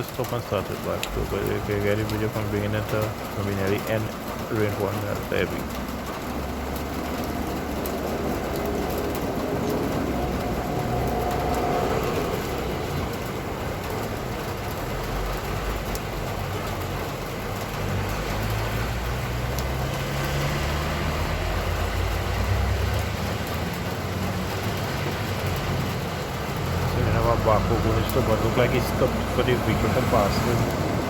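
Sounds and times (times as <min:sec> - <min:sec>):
steady rain: 0:00.0 - 0:31.0.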